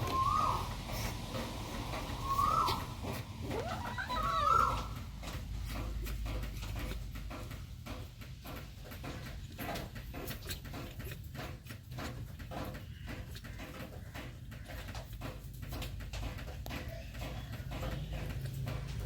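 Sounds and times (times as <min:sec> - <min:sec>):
cat chewing and lapping: 0:00.0 - 0:19.0
cat meowing: 0:03.4 - 0:04.9.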